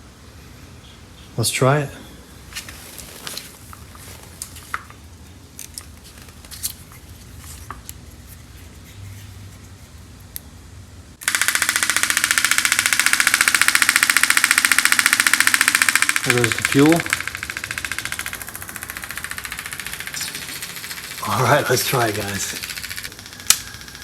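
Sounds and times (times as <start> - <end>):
engine cranked by starter motor: 11.2 - 24.0.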